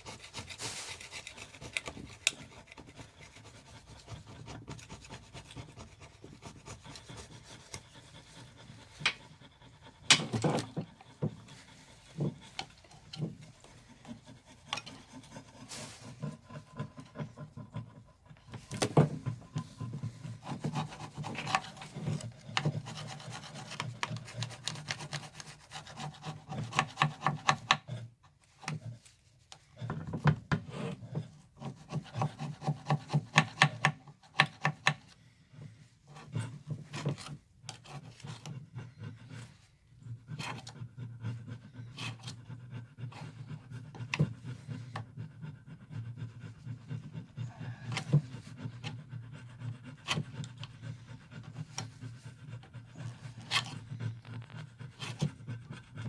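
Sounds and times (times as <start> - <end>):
filing on engine parts: 0.0 - 56.0.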